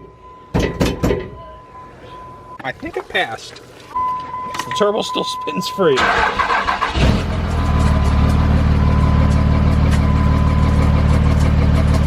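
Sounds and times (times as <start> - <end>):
diesel engine idling: 5.9 - 12.0.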